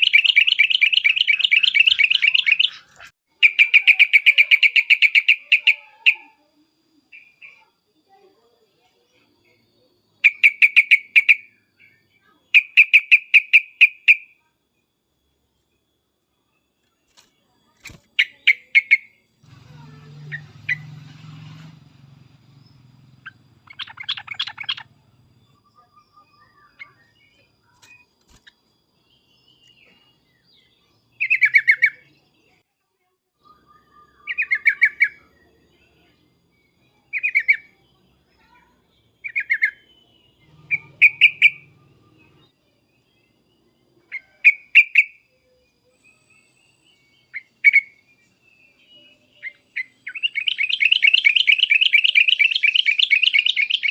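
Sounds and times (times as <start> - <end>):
bulbul chattering: 0.0 - 6.3, 16.8 - 30.2, 39.2 - 42.5, 49.4 - 53.9.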